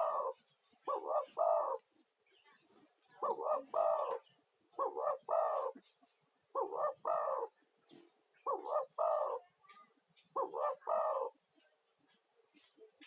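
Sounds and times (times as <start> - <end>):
dove cooing: 0.0 - 1.9, 3.1 - 12.2.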